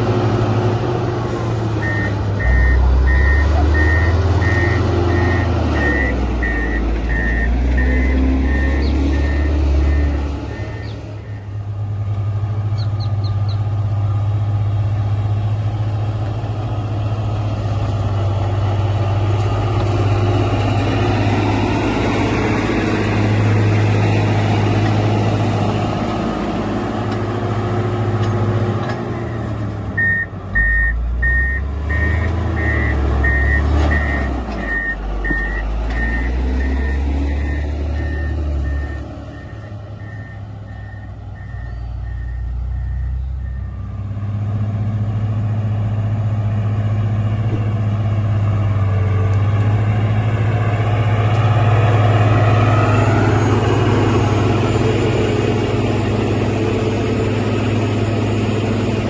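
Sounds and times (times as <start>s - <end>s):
diesel engine running: 0.0s - 59.0s
reverse alarm beeping: 1.8s - 11.5s, 30.0s - 43.8s.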